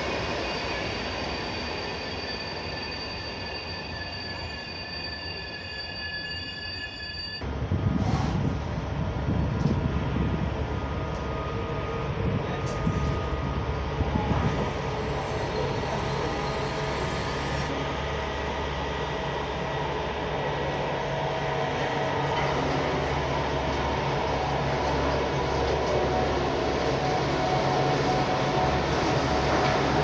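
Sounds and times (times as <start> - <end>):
train rumble: 7.4 - 30.0.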